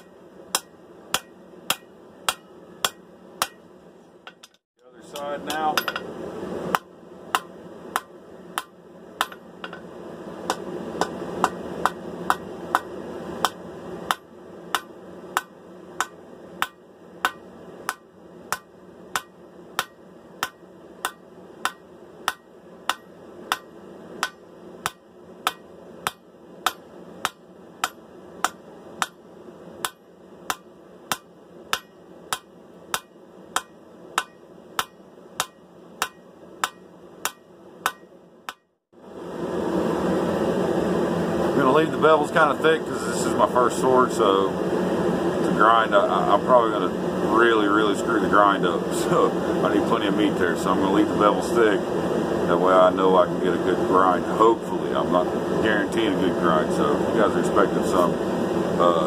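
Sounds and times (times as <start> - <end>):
hammer striking steel on anvil: 0.0 - 6.1, 6.7 - 29.2, 29.8 - 38.8.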